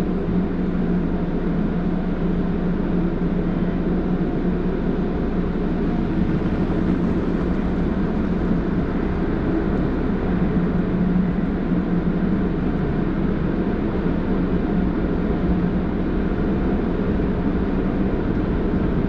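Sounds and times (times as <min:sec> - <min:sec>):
car wash machinery humming: 0:00.0 - 0:19.0.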